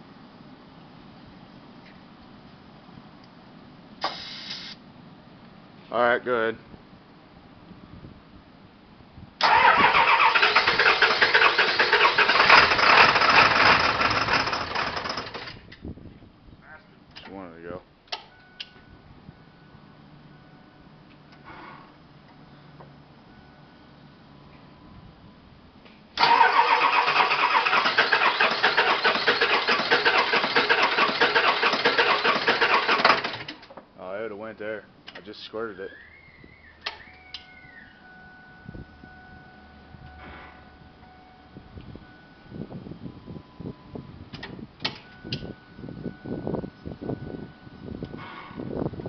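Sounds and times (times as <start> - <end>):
engine starter cranking: 9.4 - 15.7, 26.2 - 33.7.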